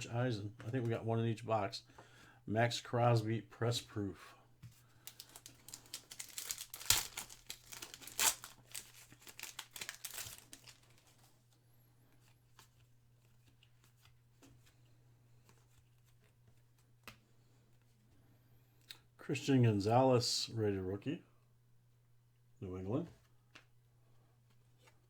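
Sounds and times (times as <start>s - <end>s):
foil pack tearing and crinkling: 5.1s - 11.1s
faint clicks of cards: 12.1s - 17.9s, 18.7s - 19.1s.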